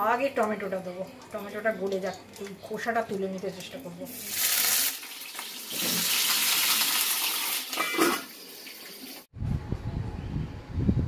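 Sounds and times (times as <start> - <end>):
kitchen tap running into sink: 1.3 - 9.2.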